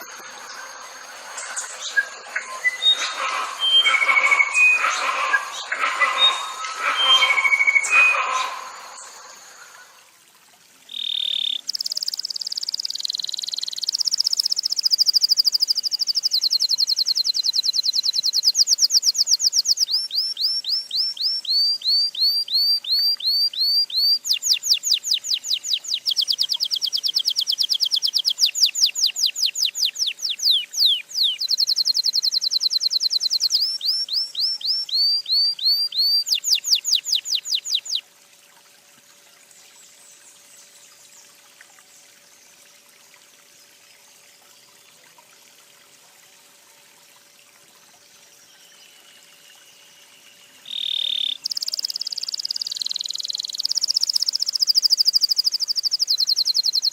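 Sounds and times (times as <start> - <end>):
faint background hiss: 0.0 - 56.9
songbird whistling song: 1.6 - 8.4, 10.9 - 38.0, 50.6 - 56.9
high-pitched bird call: 1.8 - 9.2, 29.7 - 38.0.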